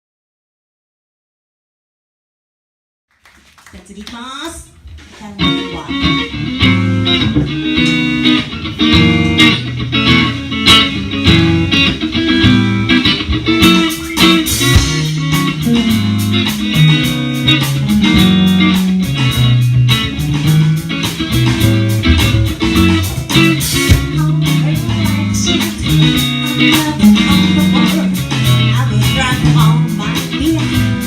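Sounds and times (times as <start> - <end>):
guitar: 3.2 - 31.0
bass line: 5.4 - 31.0
drum beat: 10.7 - 31.0.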